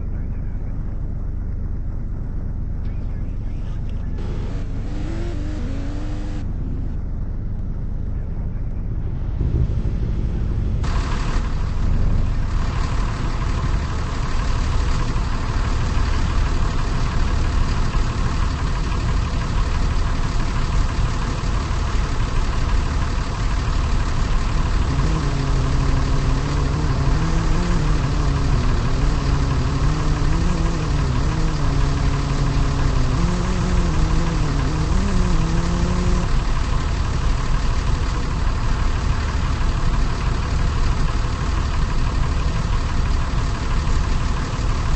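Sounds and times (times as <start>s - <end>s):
car engine idling: 0.1s - 44.9s
low wavering drone: 3.0s - 12.5s.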